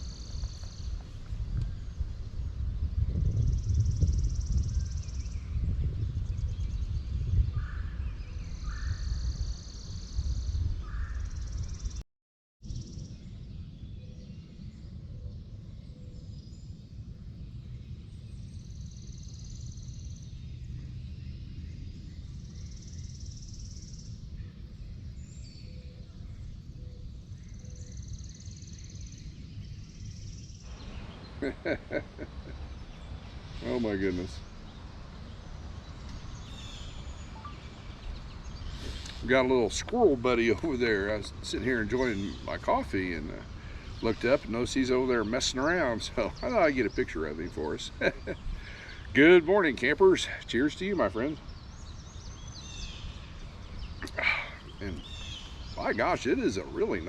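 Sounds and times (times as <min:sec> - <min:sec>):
wind rumbling on microphone: 0:00.0 - 0:12.0, 0:12.6 - 0:57.0
short bird chirps: 0:36.0 - 0:39.3.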